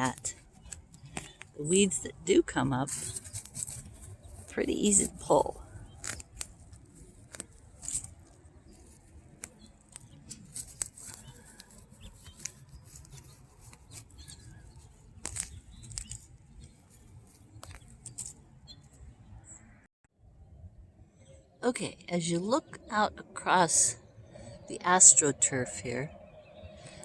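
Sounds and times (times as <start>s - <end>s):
weeds pulled from mulch crackling: 0.0s - 18.4s.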